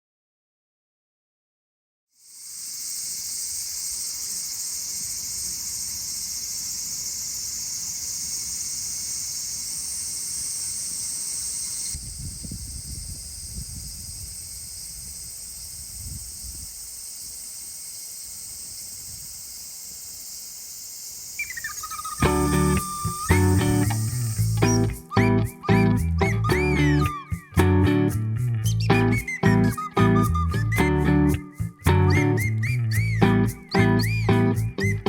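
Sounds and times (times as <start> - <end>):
cicadas buzzing: 2.2 - 26.0.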